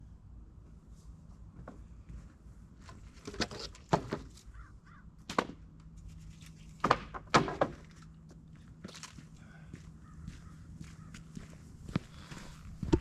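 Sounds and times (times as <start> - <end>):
low steady hum: 0.0 - 13.0
sharp knocks and thuds: 6.8 - 7.9.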